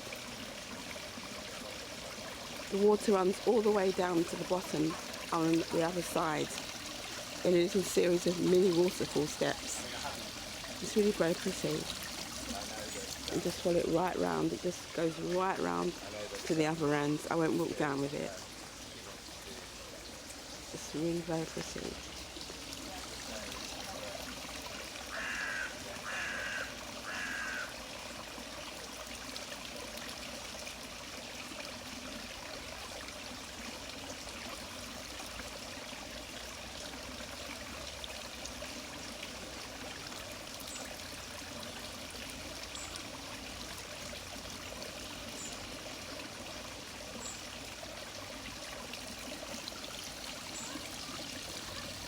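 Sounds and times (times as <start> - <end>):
water trickling down waterfall steps: 0.0 - 52.0
bird calling: 25.1 - 27.7.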